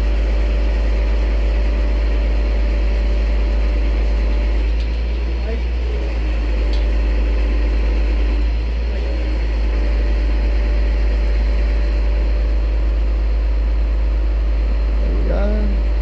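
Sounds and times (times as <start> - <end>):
crane engine rumbling: 0.0 - 16.0
steady hum: 11.9 - 16.0.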